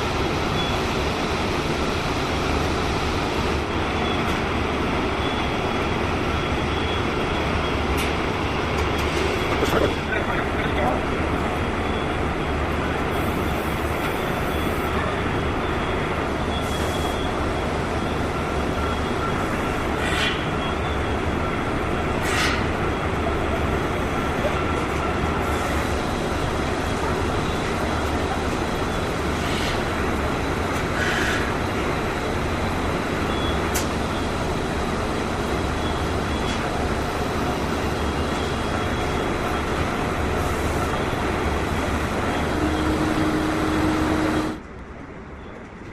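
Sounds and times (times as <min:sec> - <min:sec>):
factory machinery din: 0:32.7 - 0:44.7.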